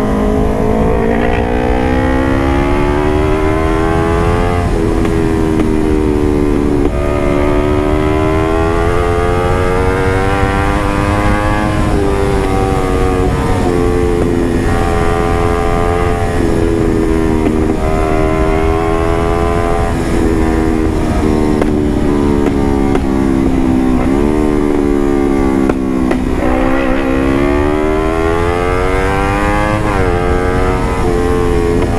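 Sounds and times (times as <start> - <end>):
motorcycle engine revving: 0.0 - 31.9.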